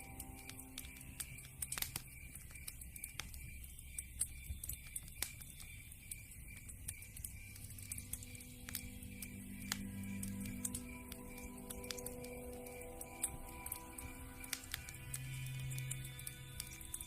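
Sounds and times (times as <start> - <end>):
log fire crackling: 0.0 - 17.0
fire pops: 0.4 - 12.3.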